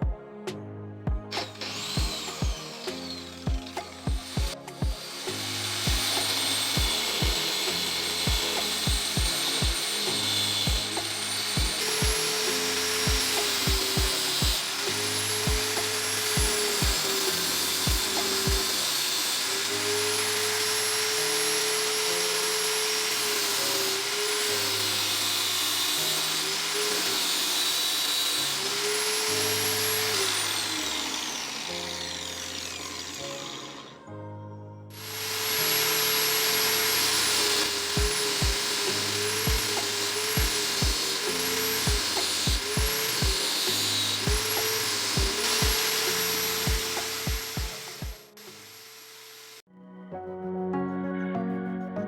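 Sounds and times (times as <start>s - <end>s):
background music with drum beat: 1.1s - 5.1s, 5.9s - 12.3s, 13.0s - 14.6s, 15.5s - 17.0s, 17.9s - 18.7s, 38.0s - 38.7s, 39.5s - 41.0s, 41.8s - 43.5s, 44.3s - 45.8s, 46.7s - 48.2s
angle grinder sanding whine: 1.3s - 34.1s, 35.0s - 49.7s.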